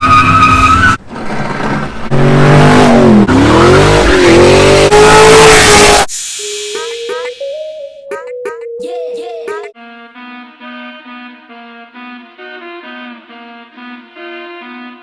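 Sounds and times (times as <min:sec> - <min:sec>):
car engine revving hard: 0:01.1 - 0:06.1.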